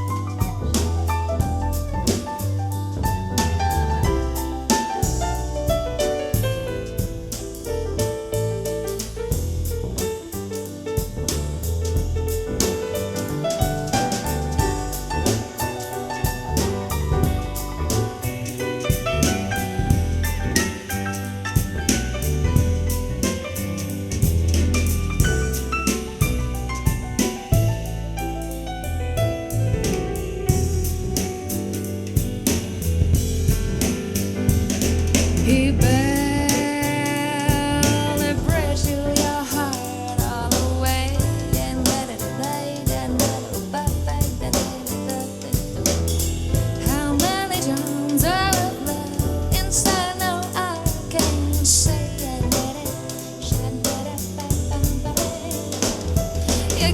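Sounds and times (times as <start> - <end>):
bass line: 0.0 - 56.9
drum kit beats: 0.0 - 56.9
piano and keyboard chords: 0.0 - 56.9
soul-jazz band playing: 0.0 - 56.9.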